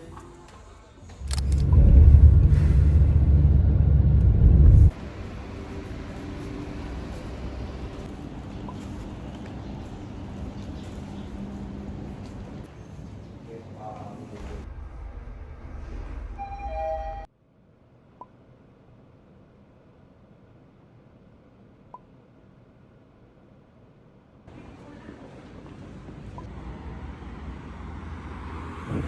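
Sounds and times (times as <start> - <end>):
loud low rumble: 1.2 - 12.7, 14.4 - 17.3.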